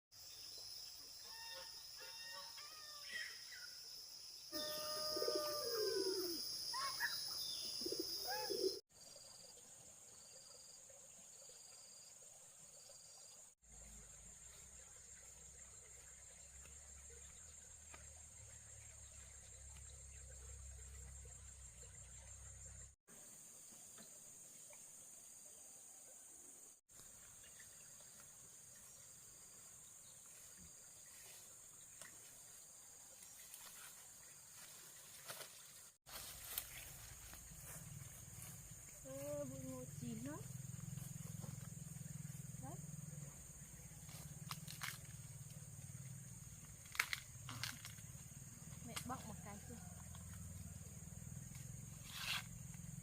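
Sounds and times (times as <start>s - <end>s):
insect drone: 0.2s - 9.5s, 36.2s - 53.0s
insect trill: 0.2s - 9.5s, 36.2s - 53.0s
birds chirping and calling: 4.7s - 8.8s.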